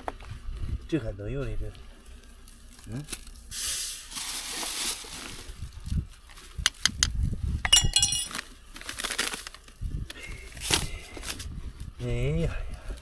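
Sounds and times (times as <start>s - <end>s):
brushing snow hiss: 3.5s - 5.2s
hard objects clinking: 7.7s - 8.4s.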